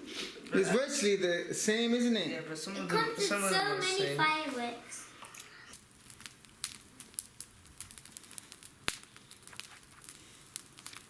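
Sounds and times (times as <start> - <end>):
packaging clicks and crinkles: 5.2 - 11.0.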